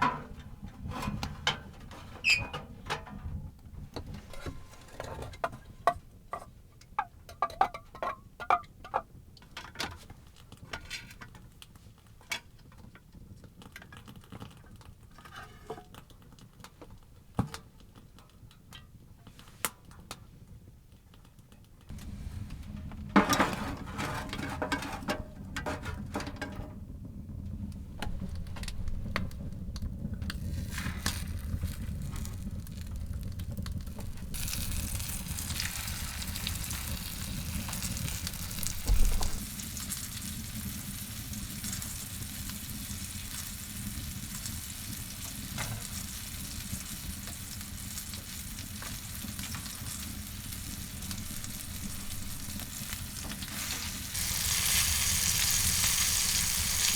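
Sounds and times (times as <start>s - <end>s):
food sizzling in a pan: 33.9s - 56.9s
knocks and clatter: 38.7s - 39.4s.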